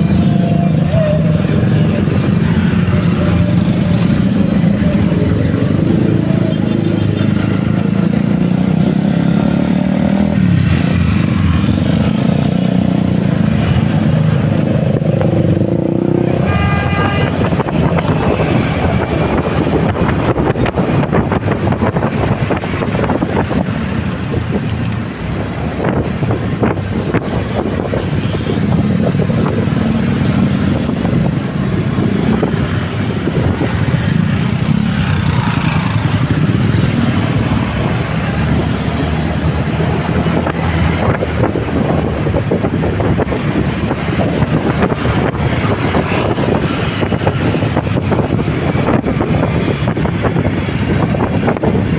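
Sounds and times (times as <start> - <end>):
road traffic: 0.0 - 51.9
vehicle horn: 16.3 - 17.6.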